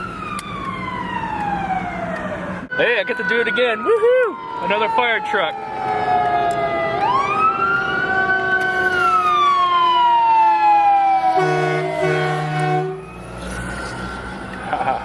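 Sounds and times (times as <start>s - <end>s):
fire truck siren wailing: 0.0s - 15.0s
air horn blasts: 11.3s - 13.1s.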